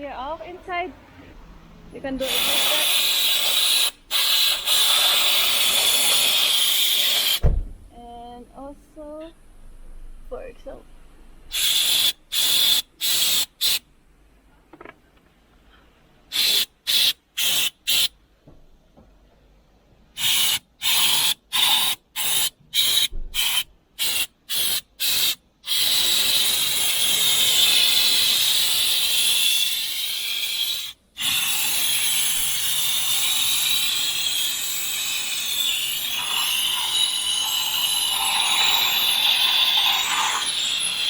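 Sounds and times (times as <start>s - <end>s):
spray nozzle hissing: 2.2s - 7.6s, 11.5s - 13.9s, 16.3s - 18.2s, 20.2s - 41.0s.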